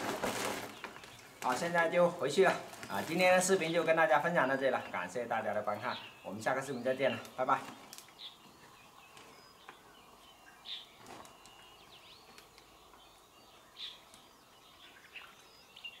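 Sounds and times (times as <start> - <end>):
thin whistled bird notes: 5.8 - 16.0.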